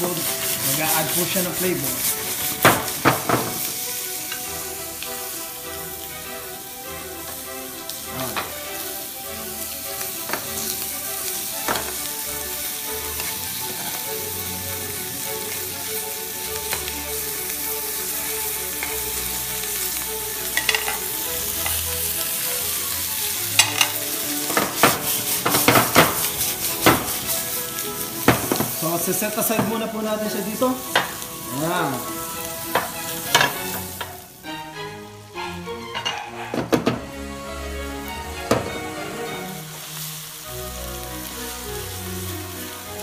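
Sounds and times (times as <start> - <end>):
pops and crackles of flaring pan: 0.0 - 5.8, 7.2 - 8.8, 9.6 - 14.2, 14.8 - 34.3
prawns sizzling in a pan: 0.0 - 36.1, 37.0 - 43.0.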